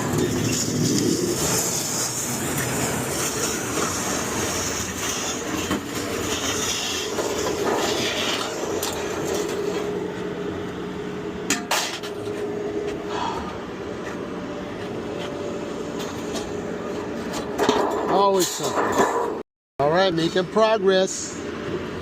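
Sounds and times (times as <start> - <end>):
truck driving: 0.0 - 17.6.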